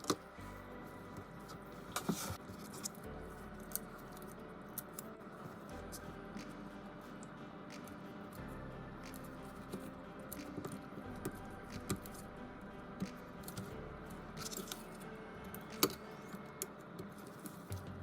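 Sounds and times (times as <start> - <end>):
faint background music: 0.0 - 18.0.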